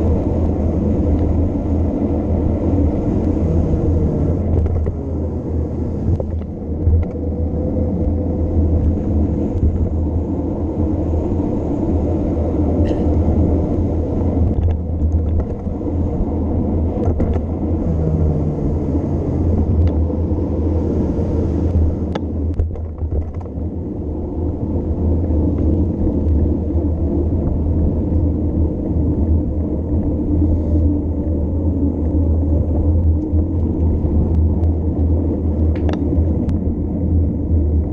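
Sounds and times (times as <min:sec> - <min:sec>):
wind buffeting microphone: 0:00.0 - 0:37.9
bike clicks and rattles: 0:14.1 - 0:15.9, 0:22.2 - 0:23.6.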